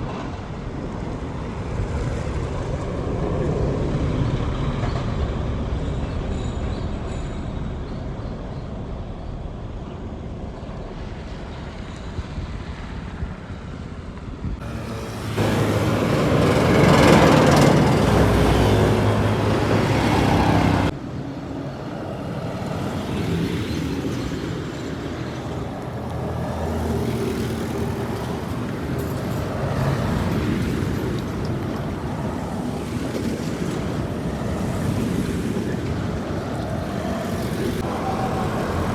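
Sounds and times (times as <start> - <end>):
heavy truck engines rumbling: 14.6 - 38.9.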